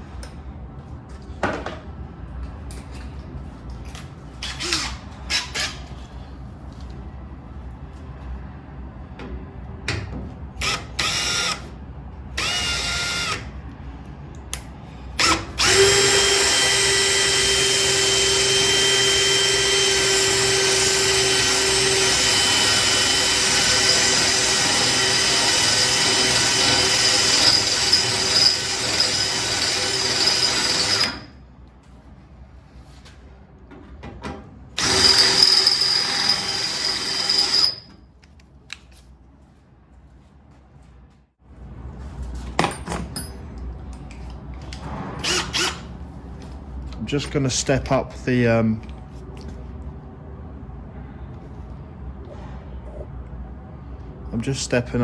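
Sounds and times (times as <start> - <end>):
power drill drilling steel: 10.6 - 11.6, 12.4 - 13.4, 15.2 - 31.2, 34.8 - 37.9, 45.2 - 45.8.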